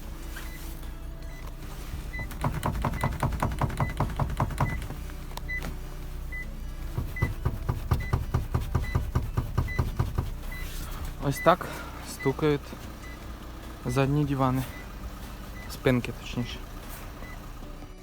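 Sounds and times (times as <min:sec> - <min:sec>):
seat backrest knocking in latch: 0:02.2 - 0:05.0, 0:07.0 - 0:10.4.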